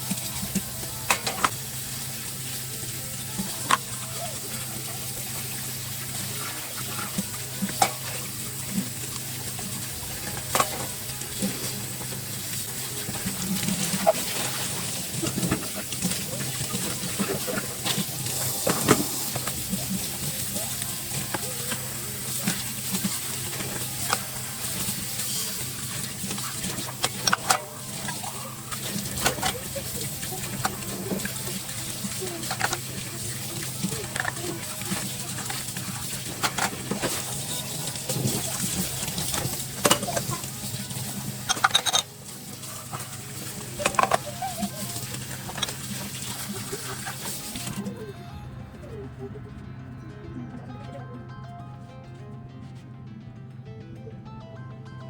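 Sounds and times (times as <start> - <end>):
tap water running into sink: 0.0 - 47.8
dishes clinking: 26.0 - 47.7.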